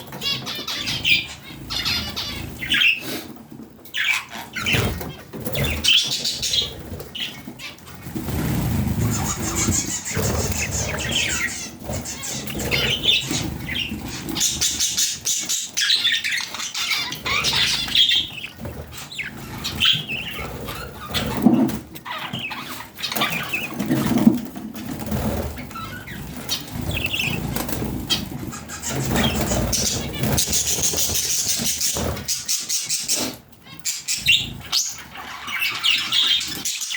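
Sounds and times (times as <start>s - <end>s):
budgerigars chirping: 0.0s - 3.2s, 3.9s - 24.3s, 24.9s - 36.9s
wings fluttering: 4.6s - 33.3s.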